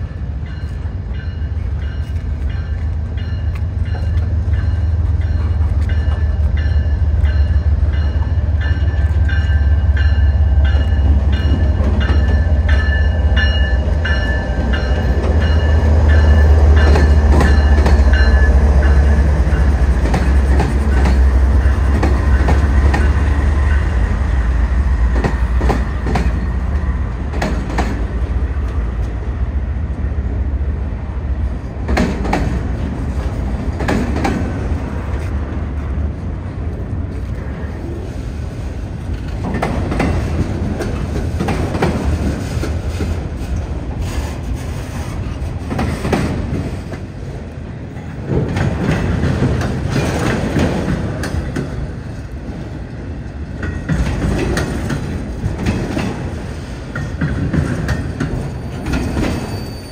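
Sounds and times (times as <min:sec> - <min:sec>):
diesel locomotive engine rumble: 0:00.0 - 0:59.9
wheels clicking over rail joints: 0:53.3 - 0:59.6
thin high squeal: 0:58.5 - 0:59.9.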